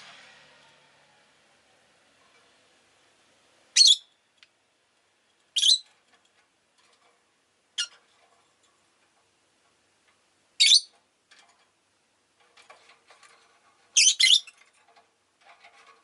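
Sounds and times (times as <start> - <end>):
lovebird shrill chirps: 3.8 - 4.1, 5.6 - 5.8, 10.6 - 10.9, 14.0 - 14.5.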